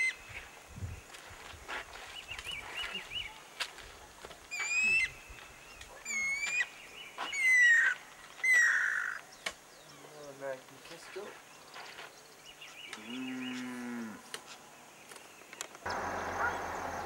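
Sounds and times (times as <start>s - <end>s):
cuckoo calling: 4.5s - 10.1s.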